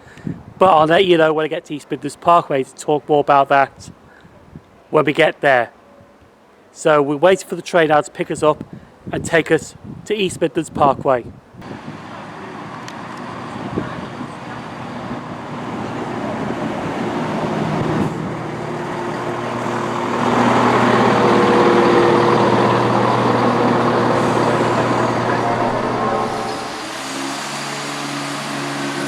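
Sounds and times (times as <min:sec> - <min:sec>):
diesel train engine approaching: 0:11.6 - 0:29.0.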